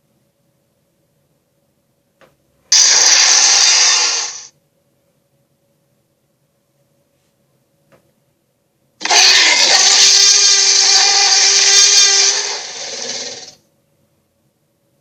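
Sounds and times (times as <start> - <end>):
sea creature roar: 9.0 - 13.6.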